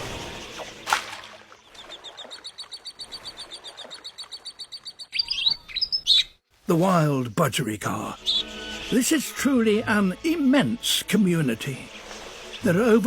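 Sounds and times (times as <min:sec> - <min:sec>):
rapid trill of animal calls: 0:01.7 - 0:06.4, 0:08.1 - 0:09.2
rising bird chirps: 0:01.7 - 0:06.4.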